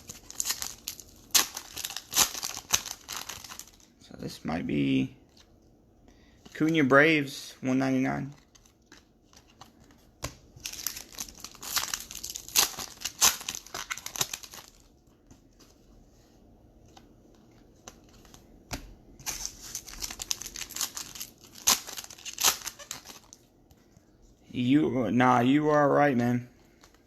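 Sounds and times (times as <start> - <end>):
card pack wrapper crinkling: 0.0 - 4.0, 8.1 - 15.0, 19.2 - 23.5.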